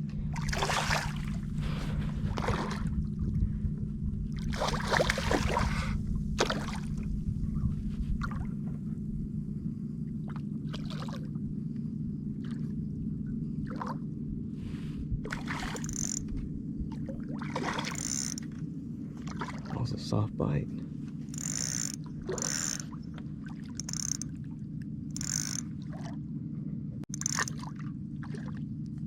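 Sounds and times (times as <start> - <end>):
water sloshing around kayak: 0.2 - 3.6, 4.2 - 8.8, 10.1 - 11.5, 14.8 - 20.1, 20.7 - 26.3, 27.1 - 29.0
splashes and knocks: 0.4 - 1.4, 4.4 - 5.7, 6.4 - 7.0.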